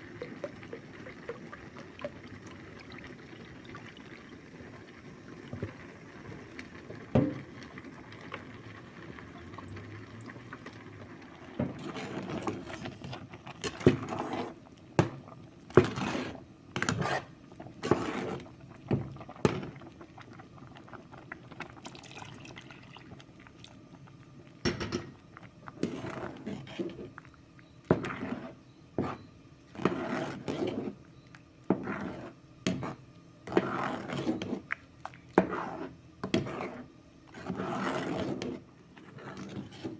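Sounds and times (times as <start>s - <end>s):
liquid pouring and splashing: 0.0s - 4.4s, 19.2s - 23.8s
pots and utensils knocking: 24.6s - 25.2s.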